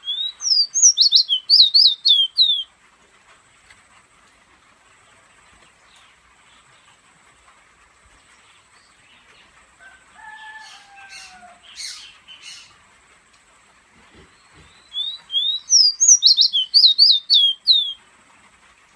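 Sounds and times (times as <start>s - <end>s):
songbird whistling and chirping: 0.0s - 2.7s, 14.4s - 18.0s.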